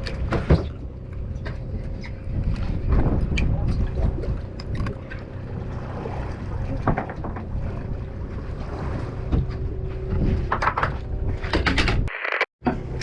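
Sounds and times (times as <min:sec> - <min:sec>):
boat engine running: 0:00.0 - 0:11.6
wind on microphone: 0:01.3 - 0:11.5.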